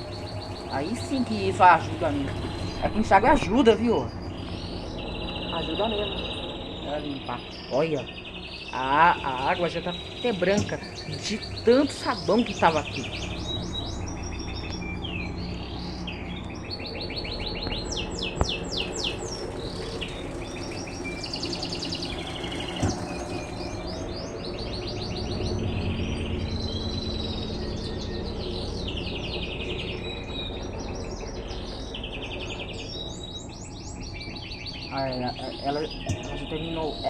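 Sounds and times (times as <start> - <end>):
washing machine running: 0.0 - 7.6, 8.2 - 33.4
small birds chirping: 0.0 - 37.0.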